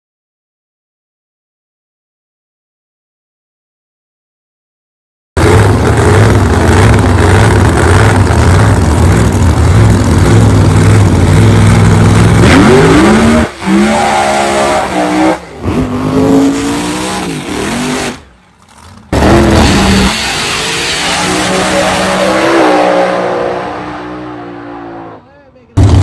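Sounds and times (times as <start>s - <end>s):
car engine revving: 5.4s - 26.0s.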